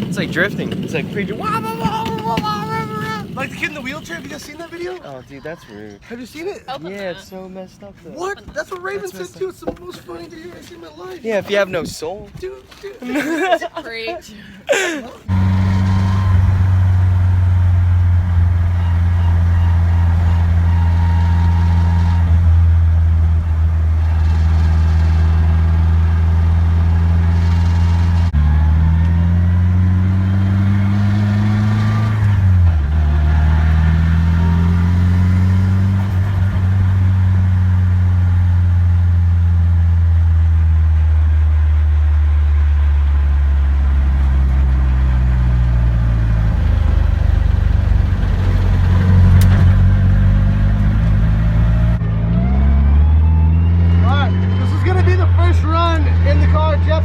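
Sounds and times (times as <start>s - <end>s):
car engine from inside cabin: 15.3s - 40.9s, 43.0s - 52.0s.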